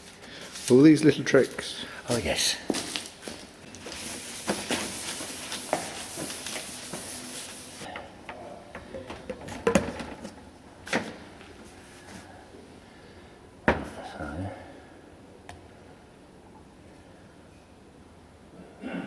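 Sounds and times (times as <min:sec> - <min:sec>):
steady hiss: 0:00.0 - 0:07.9.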